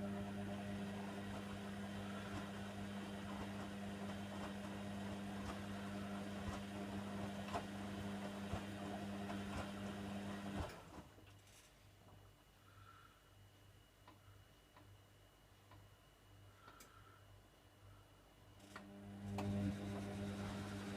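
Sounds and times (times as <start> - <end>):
washer dryer humming: 0.0 - 11.2, 18.8 - 20.9.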